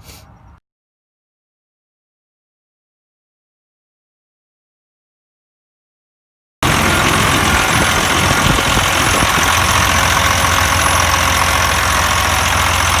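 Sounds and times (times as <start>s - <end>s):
diesel truck engine idling: 6.6s - 13.0s.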